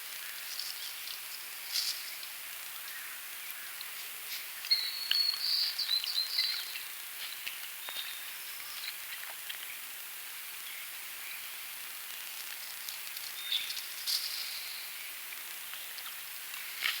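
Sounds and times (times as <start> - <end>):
outdoor background hiss: 0.0 - 17.0
bird chirp: 4.6 - 9.2, 13.4 - 15.1
songbird whistling and trilling: 4.7 - 6.7.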